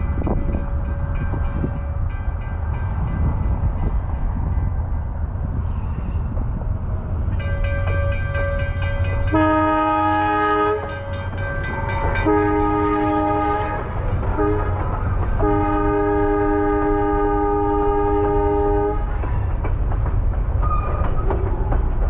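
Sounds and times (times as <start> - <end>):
locomotive horn blasts: 7.9 - 19.1.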